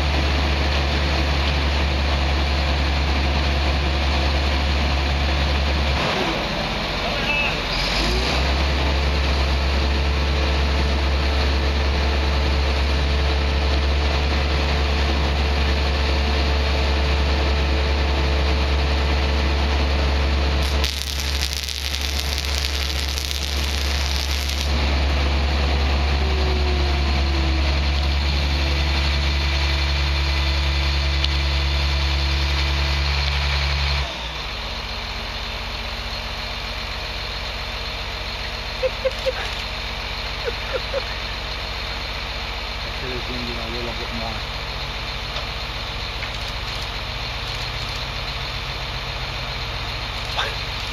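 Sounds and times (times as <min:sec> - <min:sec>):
truck engine idling: 0:00.0 - 0:50.9
hissing noise: 0:20.6 - 0:25.0.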